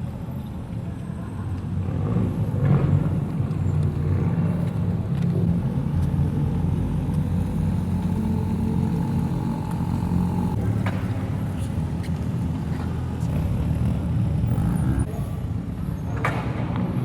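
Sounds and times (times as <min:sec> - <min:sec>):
car engine at low revs: 0:02.1 - 0:15.2.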